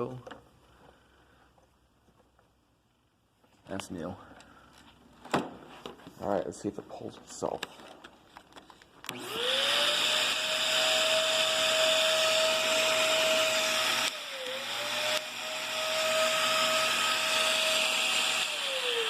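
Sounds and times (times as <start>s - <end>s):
vacuum cleaner running: 9.1s - 19.0s.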